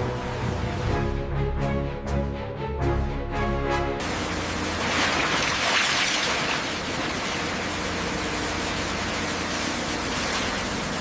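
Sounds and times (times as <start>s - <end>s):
music: 0.0s - 4.1s
pump rushing water hiss: 4.0s - 11.0s.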